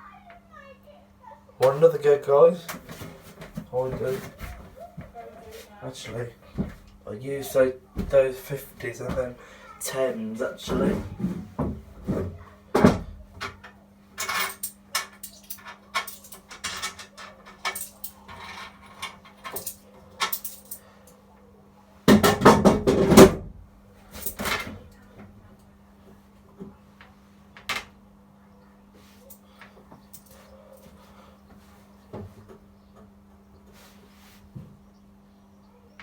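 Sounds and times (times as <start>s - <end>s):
low electrical hum: 0.0s - 36.0s
coins clinking and rattling: 14.2s - 20.8s.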